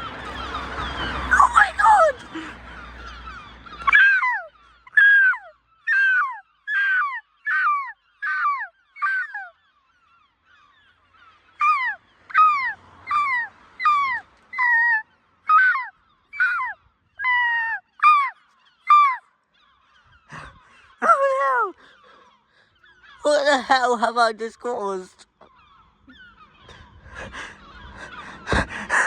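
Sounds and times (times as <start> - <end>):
gulls calling: 0.0 - 29.0.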